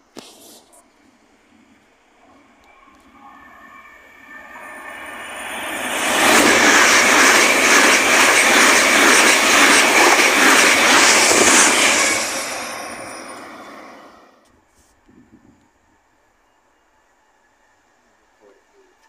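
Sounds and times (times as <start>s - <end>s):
train passing at speed: 1.0s - 14.4s
wheels beating on rails: 4.1s - 14.3s.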